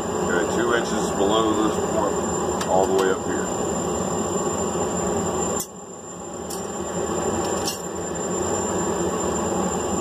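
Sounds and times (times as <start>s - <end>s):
shop machinery roar: 0.0s - 10.0s.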